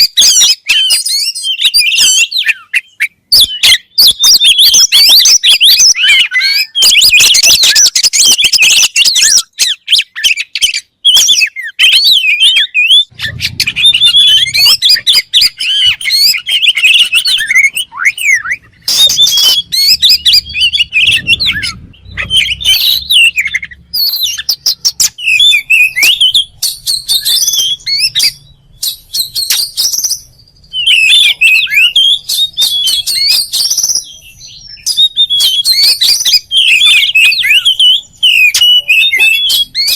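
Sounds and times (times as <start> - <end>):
bird singing whistles and chatters: 0.0 - 39.9.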